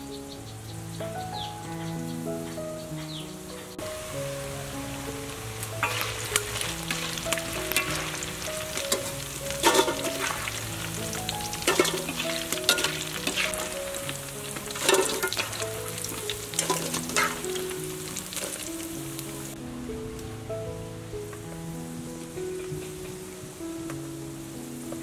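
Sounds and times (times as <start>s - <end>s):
soft background music: 0.0s - 25.0s
food deep-frying in hot oil: 3.8s - 19.6s
oil spattering: 5.7s - 19.4s.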